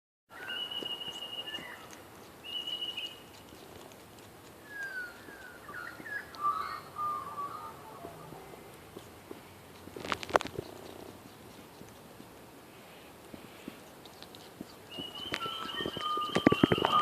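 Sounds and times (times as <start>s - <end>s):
birds whistling and chirping: 0.3s - 3.3s, 4.6s - 7.8s, 14.9s - 17.0s.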